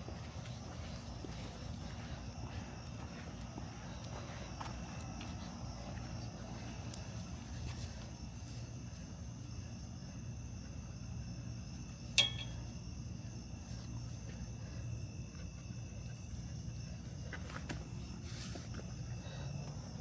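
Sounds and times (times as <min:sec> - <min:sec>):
constant high ringing tone: 0:00.0 - 0:20.0
crickets chirping: 0:00.0 - 0:20.0
sharp metallic clink: 0:12.2 - 0:12.8.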